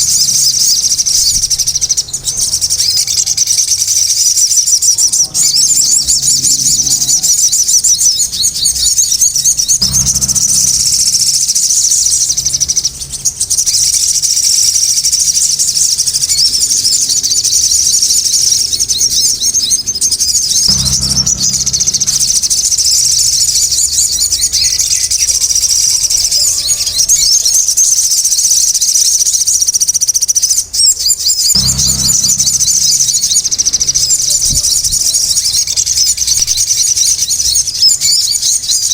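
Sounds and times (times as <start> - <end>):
dull low thuds: 9.8 - 13.2, 20.7 - 23.5, 31.6 - 35.6.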